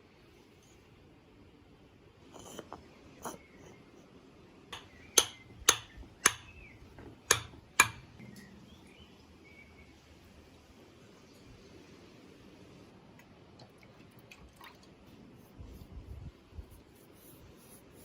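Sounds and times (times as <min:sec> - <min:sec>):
sharp knocks with short ring: 0:04.8 - 0:06.6.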